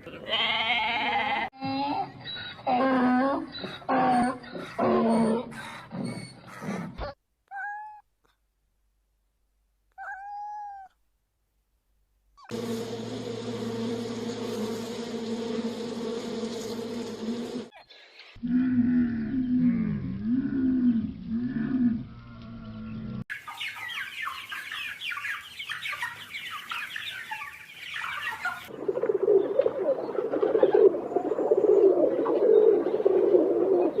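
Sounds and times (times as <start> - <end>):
dense low flickering animal sound: 18.4 - 23.2
small birds chirping: 22.3 - 28.8.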